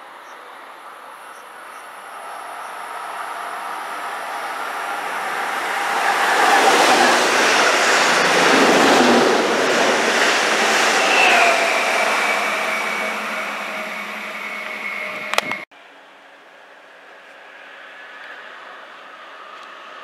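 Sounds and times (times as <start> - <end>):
train motor whine: 1.5 - 15.6
train wheels and air rushing: 1.6 - 15.7.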